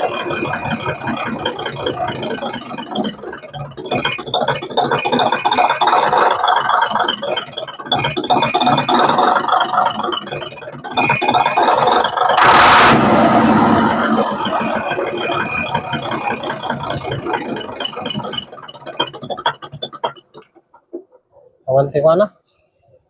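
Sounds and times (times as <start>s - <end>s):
diesel truck engine rattling: 11.0s - 21.1s.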